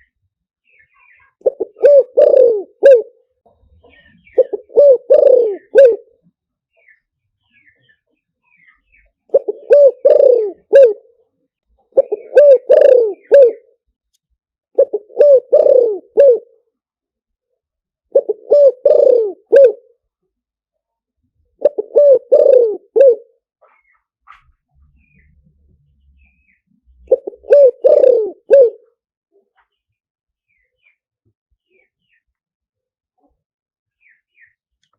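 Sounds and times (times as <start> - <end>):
dove cooing: 1.4 - 3.2, 4.1 - 6.1, 9.3 - 11.1, 11.9 - 13.7, 14.8 - 16.6, 18.1 - 19.9, 21.6 - 23.4, 27.0 - 29.0.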